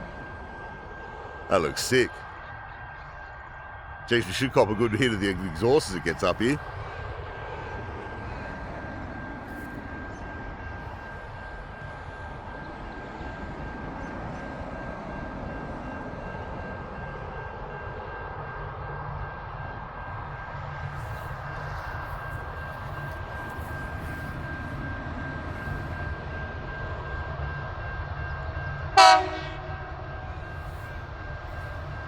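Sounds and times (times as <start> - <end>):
locomotive engine rumble: 4.1 - 18.1, 19.8 - 27.8.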